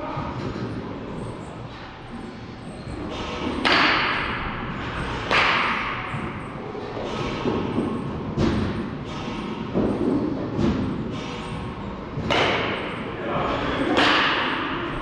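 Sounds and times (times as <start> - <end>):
baseball impacts with echo: 5.2 - 6.3, 12.2 - 13.0, 13.9 - 14.8.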